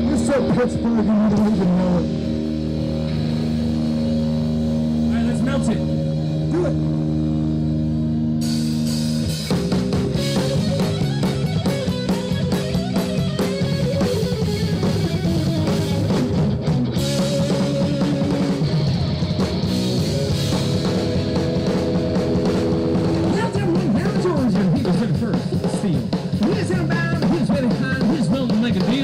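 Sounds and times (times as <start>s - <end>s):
drum kit beat: 0.0s - 29.0s
live rock band playing: 0.0s - 29.0s.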